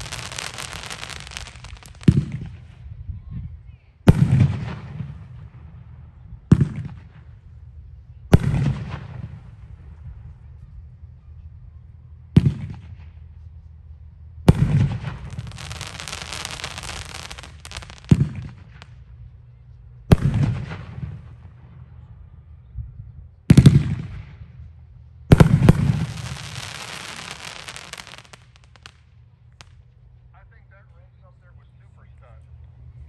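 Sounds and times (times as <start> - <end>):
firework crackling: 0.0 - 2.8, 14.5 - 19.0, 25.3 - 29.8.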